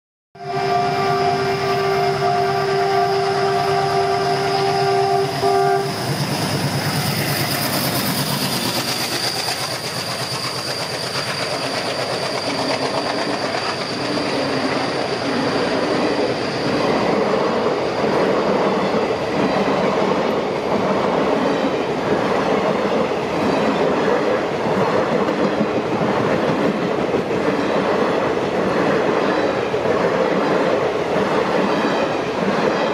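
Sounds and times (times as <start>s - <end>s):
train horn: 0.4s - 6.2s
train wheel clatter and rumble: 5.9s - 32.9s.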